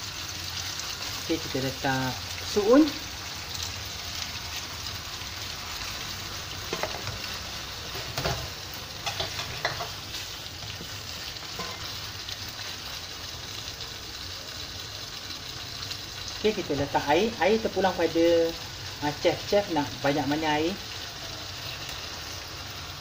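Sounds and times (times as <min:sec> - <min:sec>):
food sizzling in a wok: 0:00.0 - 0:23.0
spatula scraping and knocking pan: 0:06.7 - 0:07.3, 0:07.9 - 0:10.1, 0:10.8 - 0:12.0.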